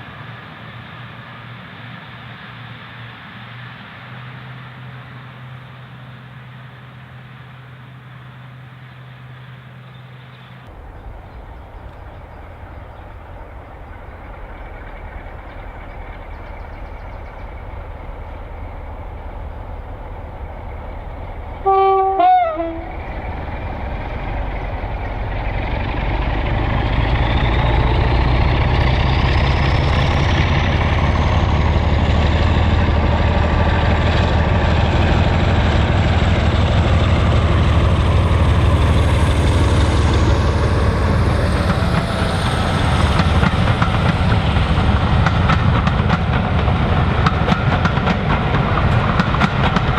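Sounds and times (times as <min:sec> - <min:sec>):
diesel locomotive engine running: 0:00.0 - 0:49.9
diesel locomotive horn: 0:21.5 - 0:23.3.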